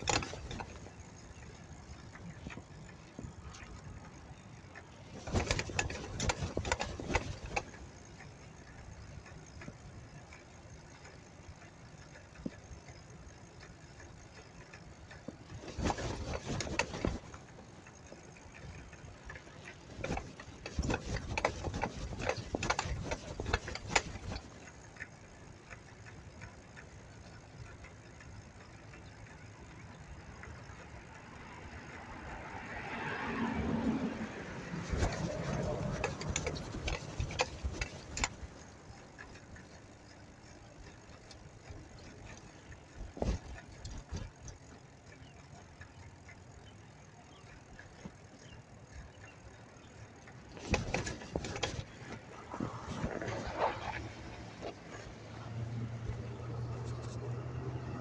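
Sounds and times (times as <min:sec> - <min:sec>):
street traffic: 0:00.0 - 0:58.0
motor vehicle passing: 0:26.4 - 0:58.0.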